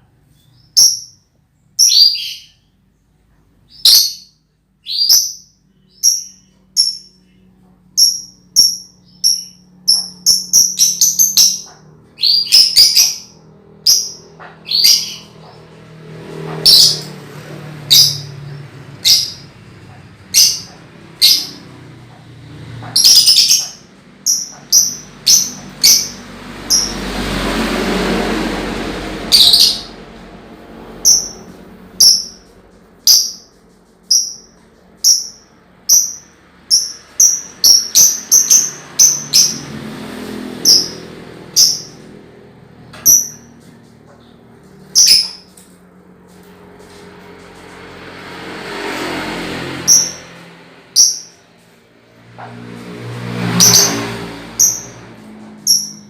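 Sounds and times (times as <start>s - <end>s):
lovebird chirping: 0.3s - 2.7s, 3.7s - 15.6s, 16.7s - 17.1s, 17.9s - 18.3s, 19.0s - 19.5s, 20.3s - 21.6s, 23.0s - 27.0s, 29.3s - 29.9s, 31.0s - 32.4s, 33.0s - 33.5s, 34.1s - 39.6s, 43.0s - 43.5s, 44.9s - 45.5s, 51.0s - 51.4s, 55.7s - 56.0s.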